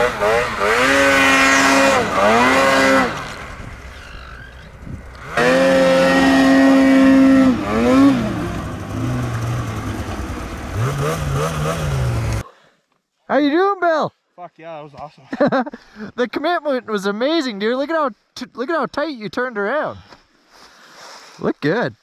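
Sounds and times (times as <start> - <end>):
snowmobile engine revving: 0.0 - 12.4.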